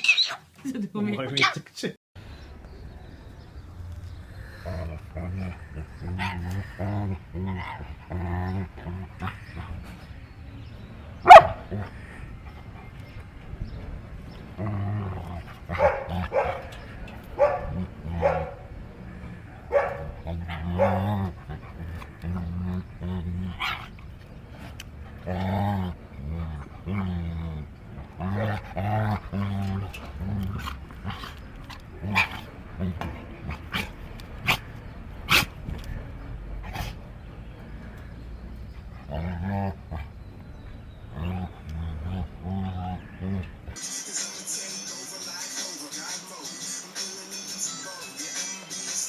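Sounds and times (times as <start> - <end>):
parrot barking yips: 0.0 - 0.4, 11.2 - 11.7
parrot imitating dog barks: 11.3 - 11.7.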